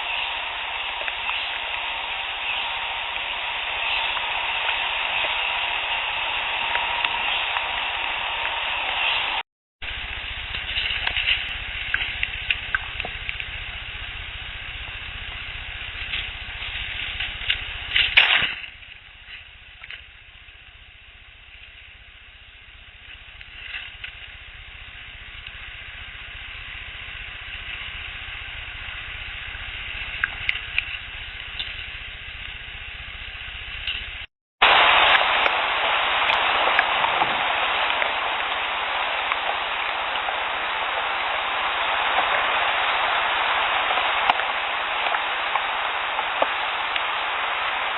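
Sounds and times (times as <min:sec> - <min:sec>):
sharp crack: 0:00.0 - 0:20.1, 0:33.7 - 0:47.9
loud steady hiss: 0:00.0 - 0:47.9
faint clicks: 0:10.0 - 0:20.8, 0:27.1 - 0:34.3.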